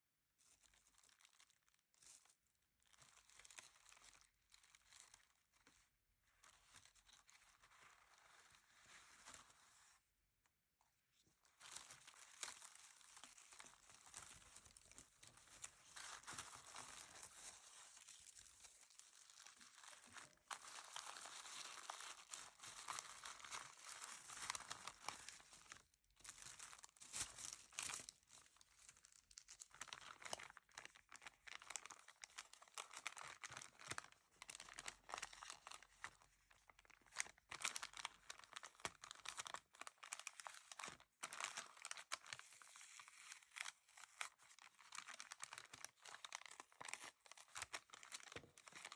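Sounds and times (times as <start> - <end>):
paper and plastic crinkling: 11.5 - 48.9.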